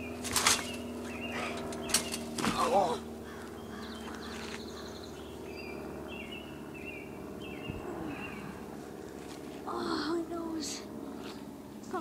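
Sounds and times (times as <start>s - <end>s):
bird chirping: 0.0s - 2.4s, 3.2s - 8.6s
low outdoor hum: 0.0s - 12.0s.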